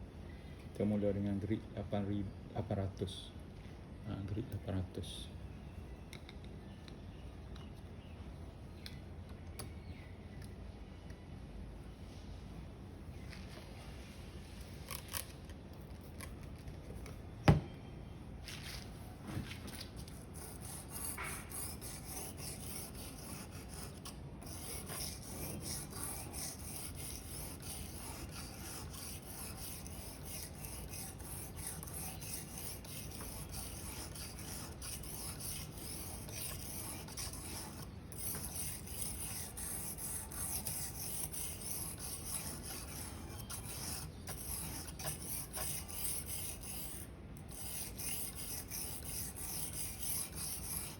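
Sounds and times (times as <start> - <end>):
knife scraping on sharpening stone: 20.4 - 50.9.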